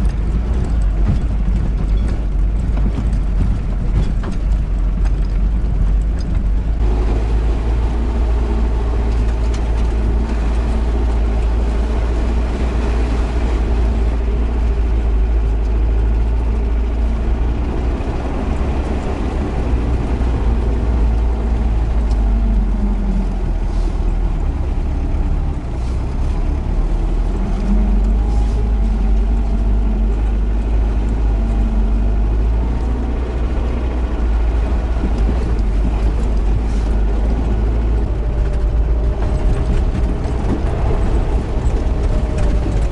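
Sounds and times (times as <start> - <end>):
van engine droning: 0.0 - 42.9.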